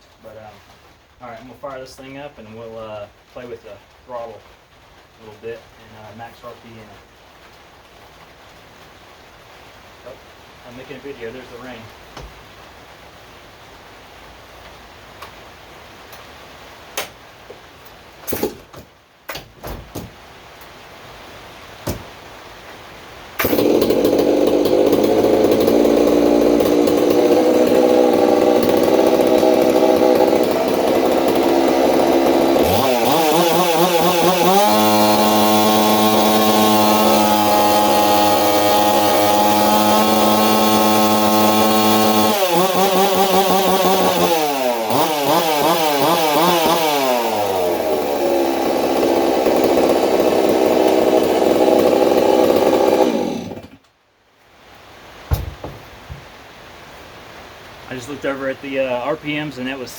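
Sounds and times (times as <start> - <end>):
knocks: 18.3 - 20.2, 21.8 - 22.1, 55.3 - 56.3
chainsaw idling and revving: 23.4 - 53.8.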